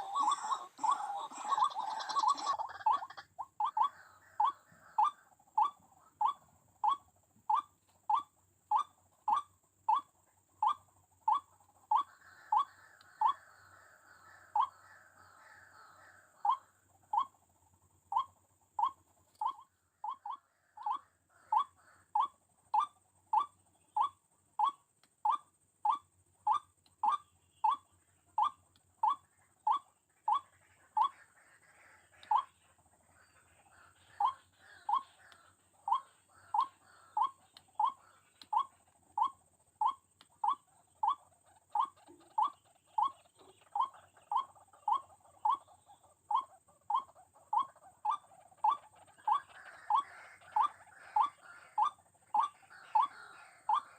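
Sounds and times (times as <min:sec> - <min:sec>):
waterhen calling: 0:00.0 - 0:10.1, 0:26.5 - 0:53.9.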